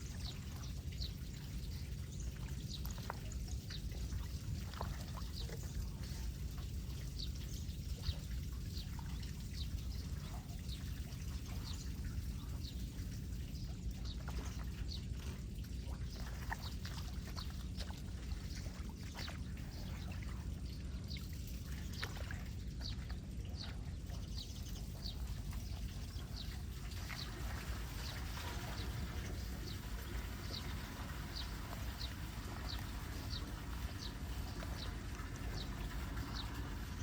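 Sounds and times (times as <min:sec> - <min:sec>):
water pouring into storm drain: 0:24.8 - 0:37.0.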